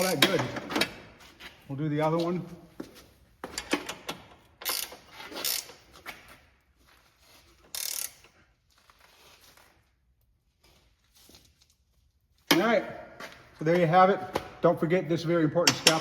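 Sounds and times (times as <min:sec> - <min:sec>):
ratchet clicking: 0:04.6 - 0:05.8, 0:07.7 - 0:08.2.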